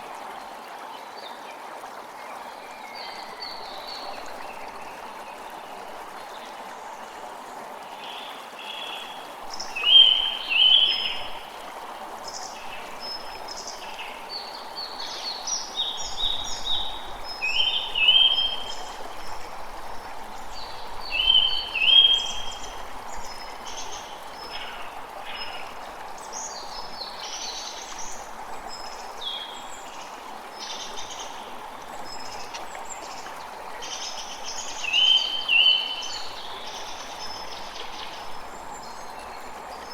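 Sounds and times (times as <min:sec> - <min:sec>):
creek running: 0:00.0 - 0:39.9.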